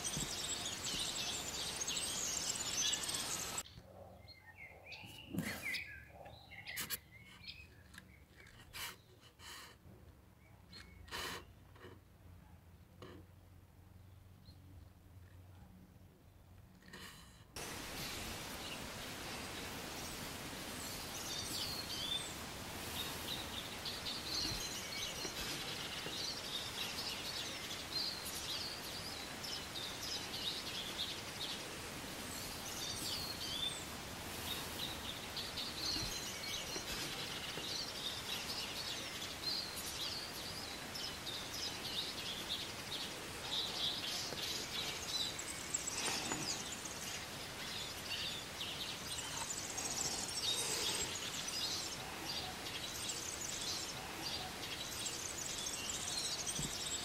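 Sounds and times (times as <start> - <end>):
steady background hiss: 0.0 - 3.7, 17.6 - 57.0
songbirds twittering: 0.0 - 9.2, 17.6 - 57.0.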